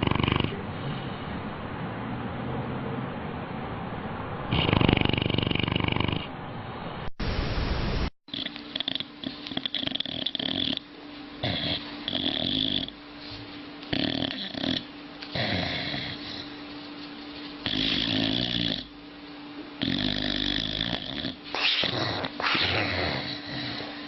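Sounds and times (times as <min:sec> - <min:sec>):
dog snoring: 0:00.0 - 0:00.6, 0:04.5 - 0:06.3, 0:08.3 - 0:13.0, 0:13.9 - 0:16.6, 0:17.6 - 0:18.9, 0:19.8 - 0:24.0.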